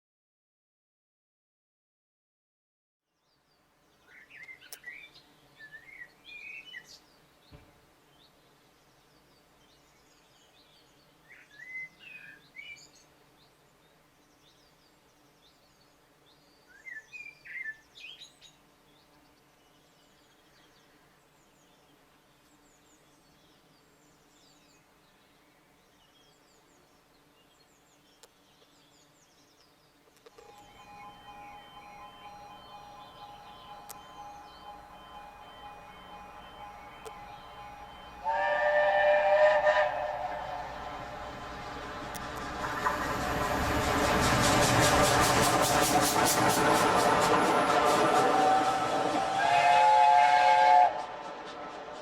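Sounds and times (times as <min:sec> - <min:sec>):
quiet outdoor background noise: 0:03.0 - 0:52.0.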